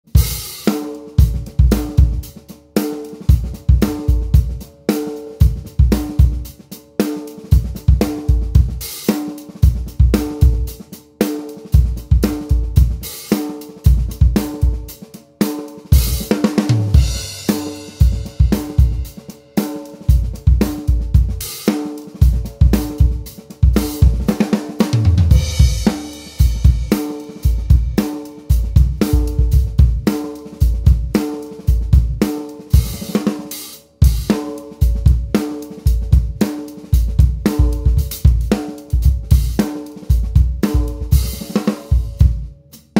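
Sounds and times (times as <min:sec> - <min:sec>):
drum kit playing a groove: 0:00.0 - 0:42.9
tom fills: 0:22.2 - 0:30.0
cymbal crashes: 0:25.3 - 0:28.0.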